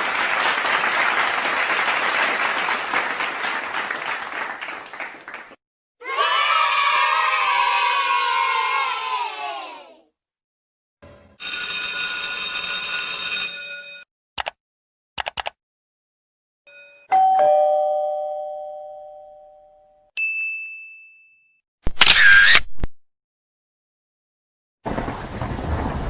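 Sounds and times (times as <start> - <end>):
short clicks: 14.4 - 14.6, 15.2 - 15.6
short high ding: 16.7 - 21.6
two-note doorbell chime: 16.7 - 21.6.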